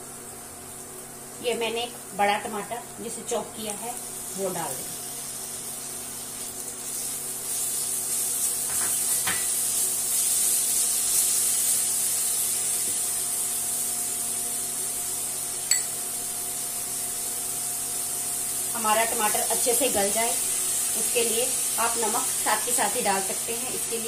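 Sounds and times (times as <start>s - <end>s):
tomato sizzling in oil: 0.0s - 24.0s
spatula tapping pan: 15.7s - 16.0s.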